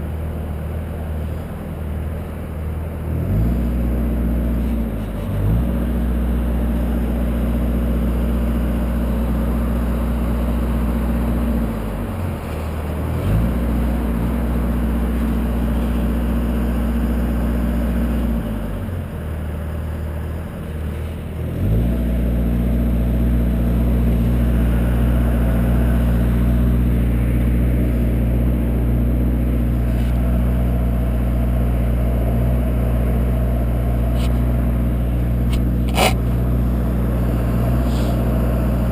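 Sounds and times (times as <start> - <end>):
lift truck engine revving: 21.4 - 38.9.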